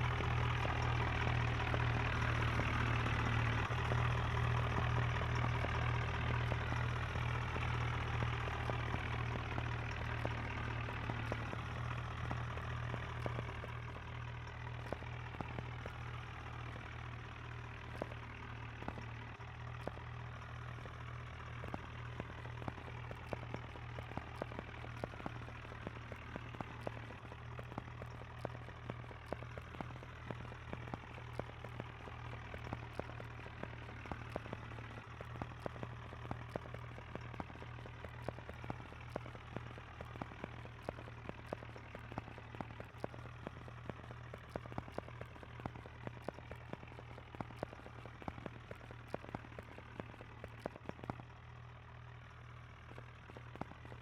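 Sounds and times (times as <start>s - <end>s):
tractor diesel engine running: 0.0s - 54.0s
sharp ticks: 21.6s - 51.3s, 52.9s - 54.0s.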